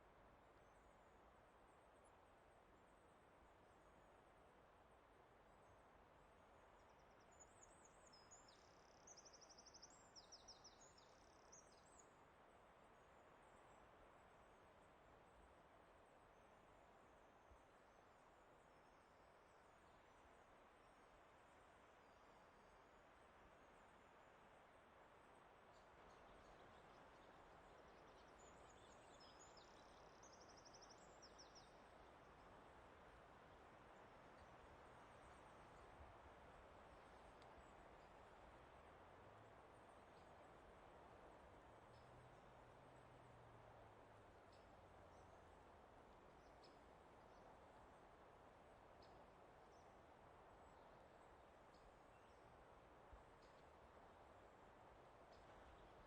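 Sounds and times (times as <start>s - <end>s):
soft forest background hiss: 0.0s - 56.0s.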